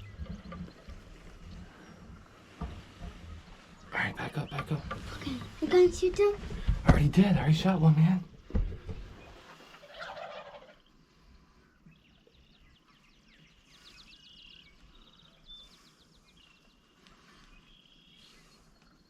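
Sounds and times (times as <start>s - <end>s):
turkeys gobbling: 9.3s - 11.0s.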